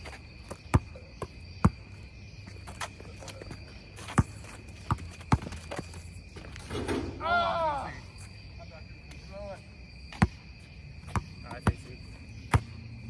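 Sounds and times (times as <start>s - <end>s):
insects droning: 0.0s - 13.0s
basketball bouncing on court: 0.4s - 2.0s, 2.7s - 5.9s, 11.1s - 11.9s, 12.5s - 12.8s.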